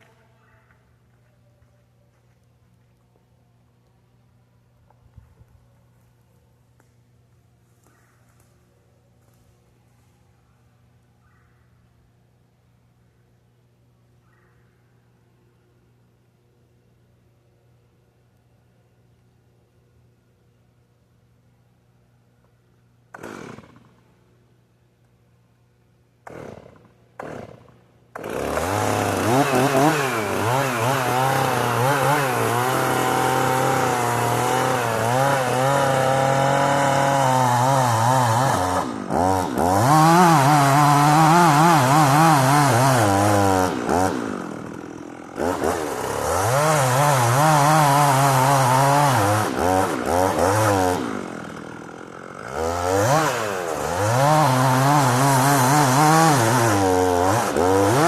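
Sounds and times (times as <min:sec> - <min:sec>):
chainsaw revving while cutting: 0:23.2 - 0:23.9, 0:26.2 - 0:58.0.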